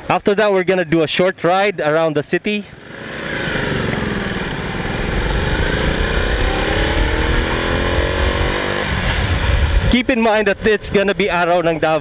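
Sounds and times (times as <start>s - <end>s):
motorcycle engine accelerating: 2.7s - 11.0s.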